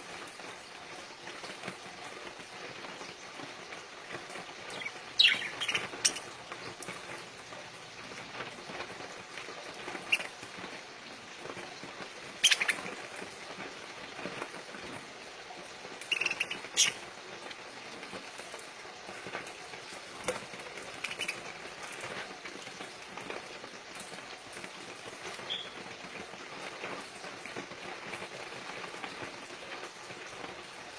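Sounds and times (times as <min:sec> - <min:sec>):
rustling hiss: 0:00.0 - 0:30.9
parakeets chirping: 0:04.6 - 0:06.6, 0:10.0 - 0:10.4, 0:12.4 - 0:13.0, 0:16.0 - 0:17.0, 0:20.8 - 0:21.5, 0:25.4 - 0:25.8.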